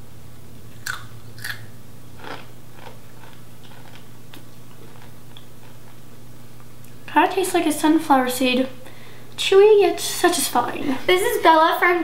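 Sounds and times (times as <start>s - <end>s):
person crunching and chewing snack: 0.8s - 6.0s.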